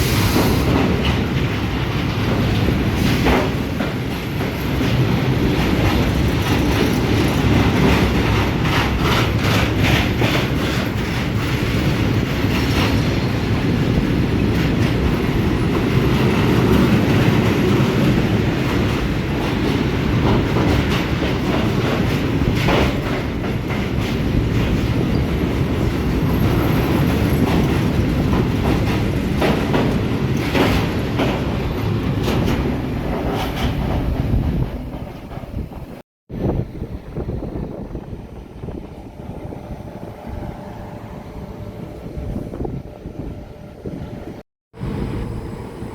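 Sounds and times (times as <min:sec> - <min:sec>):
train rumbling on track: 0:00.0 - 0:45.9
wheels clicking over rail joints: 0:00.3 - 0:36.0.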